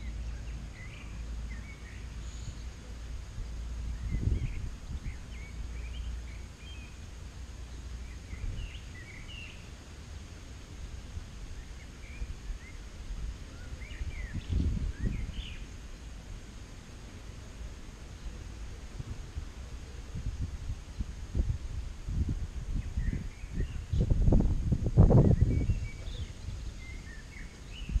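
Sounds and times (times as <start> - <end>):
small birds chirping: 0.0 - 10.4, 11.4 - 16.6, 22.7 - 24.3, 25.0 - 28.0
wind rumble on microphone: 0.0 - 28.0.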